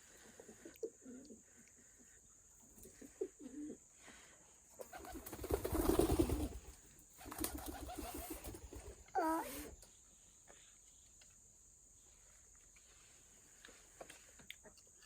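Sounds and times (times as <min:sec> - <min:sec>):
pigeon cooing: 0:00.0 - 0:01.5, 0:02.8 - 0:03.9, 0:07.4 - 0:09.7.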